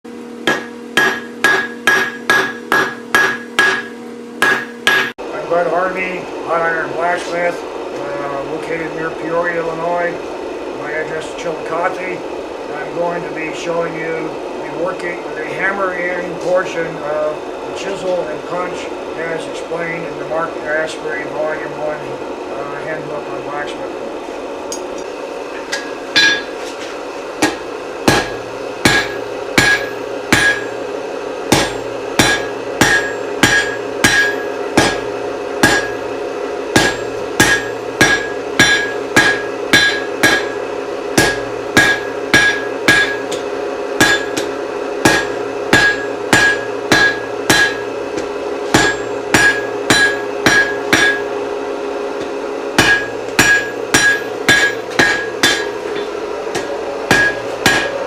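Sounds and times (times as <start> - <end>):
steady hum: 0.0 - 58.0
hammer ringing on anvil: 0.4 - 5.1, 25.7 - 26.6, 27.4 - 30.8, 31.5 - 36.1, 36.7 - 51.4, 52.2 - 58.0.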